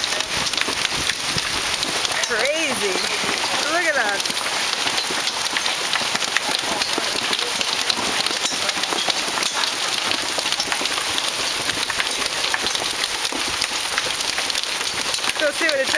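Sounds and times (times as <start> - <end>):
hailstones clattering: 0.0 - 15.9.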